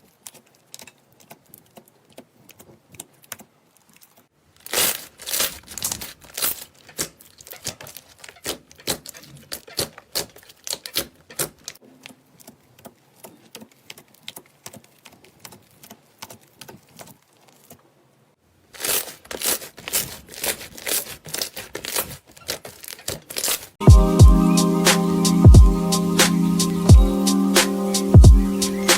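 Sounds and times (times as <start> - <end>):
music with a beat: 23.8 - 28.9.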